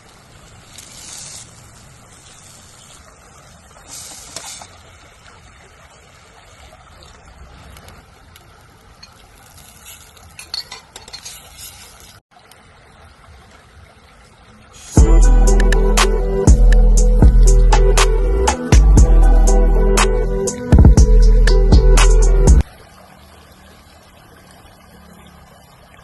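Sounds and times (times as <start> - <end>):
utensil clinking against pan: 10.4 - 11.4.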